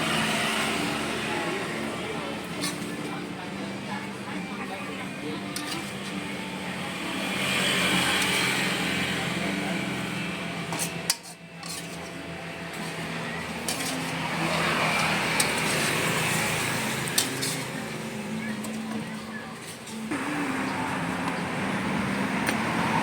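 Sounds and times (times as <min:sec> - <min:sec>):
metal utensils clinking on pan: 0:02.5 - 0:02.9, 0:05.5 - 0:06.1, 0:07.9 - 0:09.0, 0:10.7 - 0:17.8.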